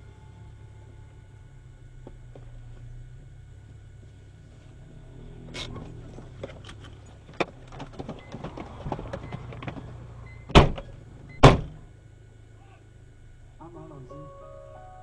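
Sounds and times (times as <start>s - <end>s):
car running hum: 0.0s - 15.0s
loud thump: 10.5s - 10.8s, 11.4s - 11.8s.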